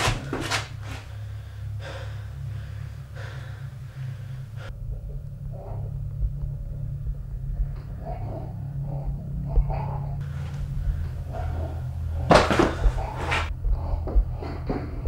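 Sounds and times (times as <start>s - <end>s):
low steady hum: 0.0s - 15.0s
man gasping for breath: 1.0s - 4.7s.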